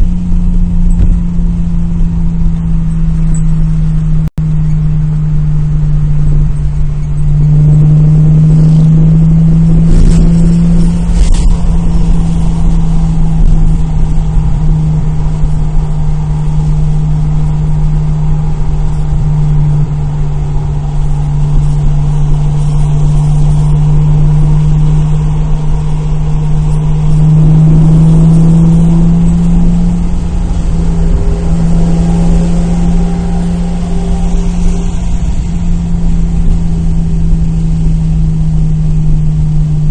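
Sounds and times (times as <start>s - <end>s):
car engine droning: 0.0s - 39.9s
road rumble: 0.0s - 39.9s.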